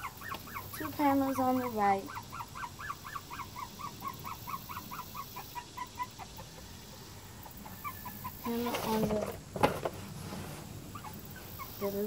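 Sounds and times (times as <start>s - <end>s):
bird calling in rapid notes: 0.0s - 6.4s.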